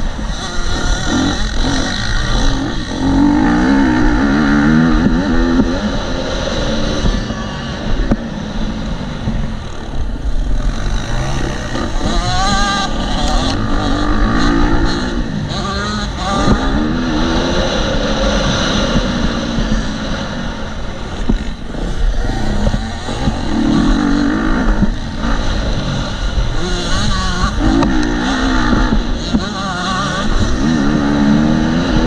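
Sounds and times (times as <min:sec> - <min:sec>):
motocross engine revving: 0:00.0 - 0:32.0.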